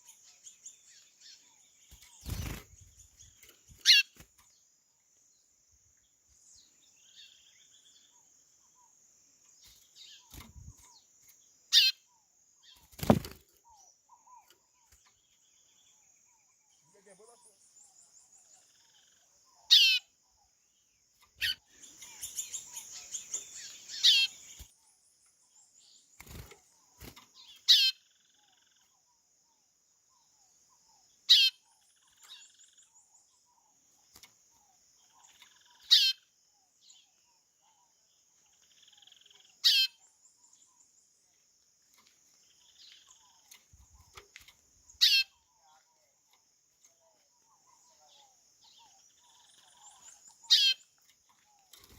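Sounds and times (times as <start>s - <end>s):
bird twittering: 0.0s - 4.2s, 11.7s - 20.5s, 21.2s - 24.7s, 26.2s - 29.0s, 30.9s - 33.7s, 34.5s - 37.9s, 38.5s - 40.8s, 42.4s - 46.1s, 46.8s - 51.9s.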